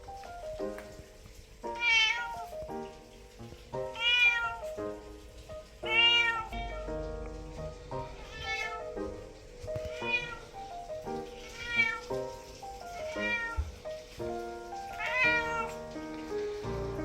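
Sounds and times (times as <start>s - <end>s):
background music: 0.0s - 17.0s
cat meowing: 1.7s - 2.7s, 3.9s - 4.8s, 5.8s - 6.9s, 7.9s - 14.2s, 14.9s - 15.9s.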